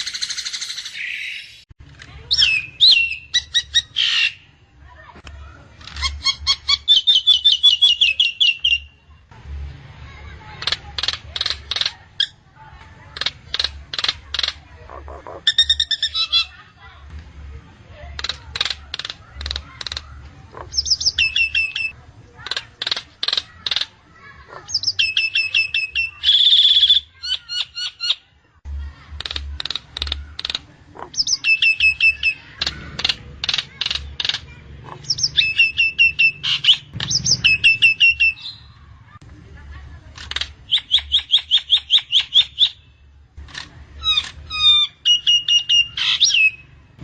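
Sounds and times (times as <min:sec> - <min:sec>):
myna sharp clicking notes: 0:29.0 - 0:31.1.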